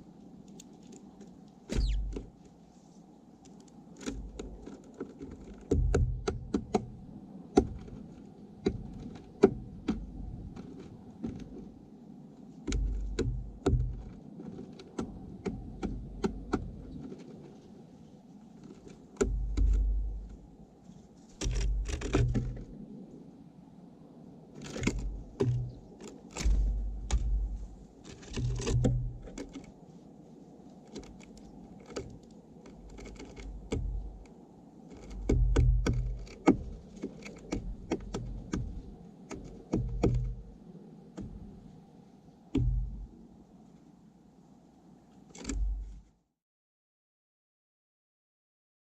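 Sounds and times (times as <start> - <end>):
beaks pecking at seed: 0.3 - 2.5
low rumble: 26.5 - 29.4.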